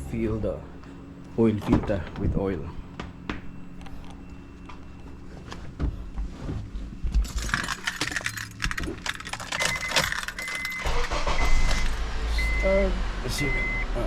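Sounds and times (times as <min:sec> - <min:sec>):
car keys jingling: 0:07.2 - 0:12.0.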